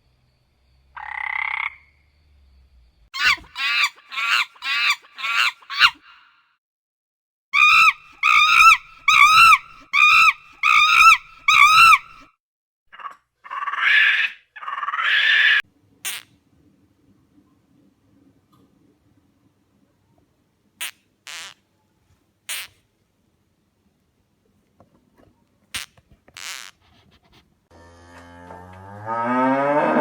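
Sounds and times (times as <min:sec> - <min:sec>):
animal croaking calls: 0:01.0 - 0:01.9, 0:03.2 - 0:06.2, 0:07.6 - 0:12.3, 0:12.9 - 0:16.2.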